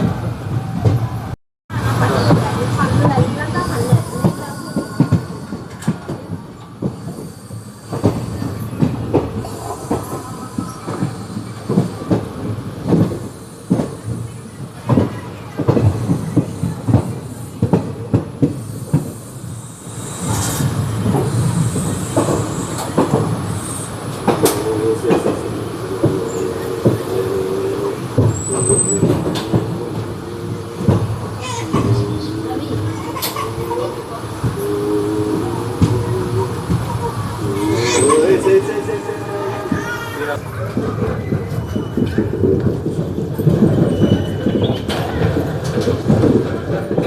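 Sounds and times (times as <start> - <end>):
train wheels rumbling and clattering: 0.0 - 47.0
wavering squeal: 9.6 - 12.1, 24.6 - 40.4.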